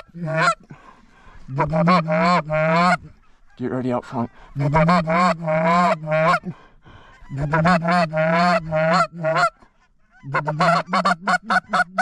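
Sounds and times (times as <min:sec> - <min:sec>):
goose honking and clucking: 0:00.0 - 0:00.6, 0:01.5 - 0:12.0.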